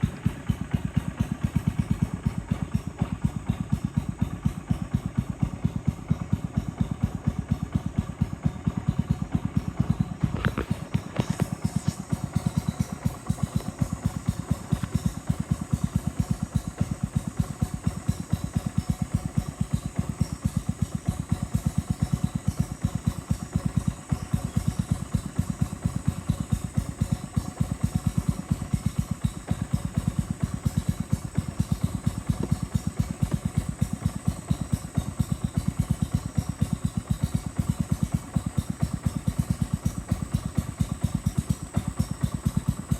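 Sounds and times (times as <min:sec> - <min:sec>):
boat engine chugging: 0:00.0 - 0:42.9.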